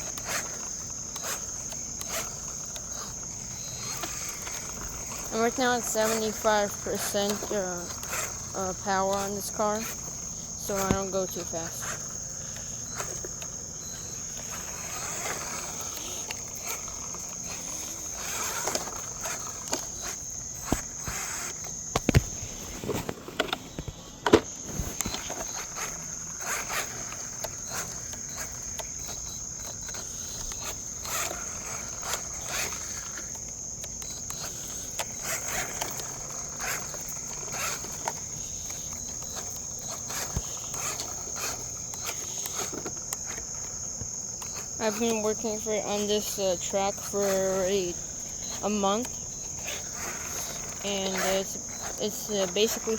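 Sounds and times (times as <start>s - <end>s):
insects chirring: 0.0s - 52.9s.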